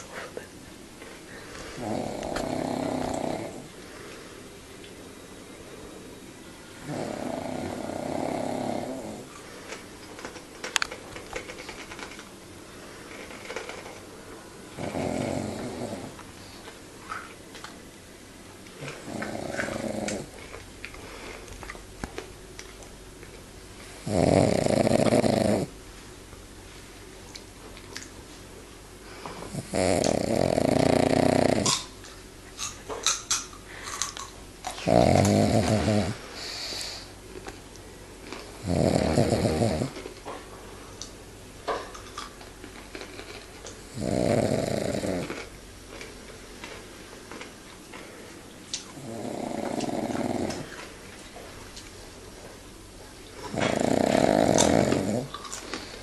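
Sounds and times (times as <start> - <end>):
dog snoring: 1.7 - 3.8, 6.8 - 9.4, 14.8 - 16.6, 18.8 - 20.4, 24.0 - 25.8, 29.4 - 31.8, 34.7 - 37.1, 38.6 - 40.0, 43.8 - 45.5, 48.9 - 50.8, 53.4 - 55.9.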